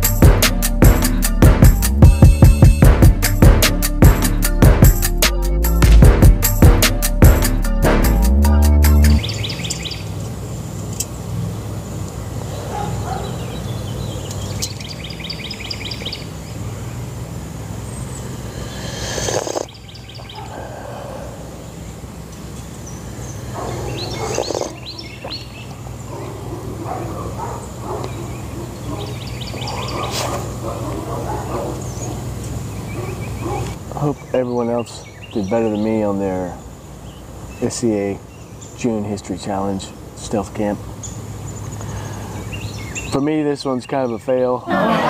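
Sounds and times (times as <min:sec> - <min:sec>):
bird trilling: 0:22.8 - 0:25.8.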